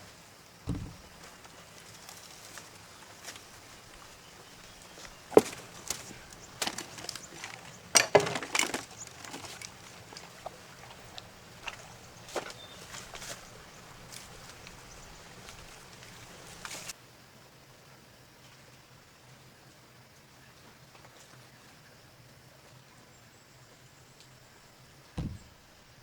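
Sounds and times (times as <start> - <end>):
sharp knocks and clatters: 0.7 - 1.4, 5.3 - 10.6, 25.2 - 26.0.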